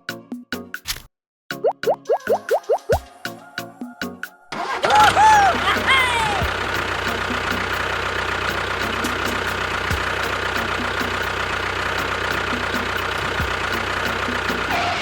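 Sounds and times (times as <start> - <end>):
diesel tractor engine idling: 4.5 - 15.0.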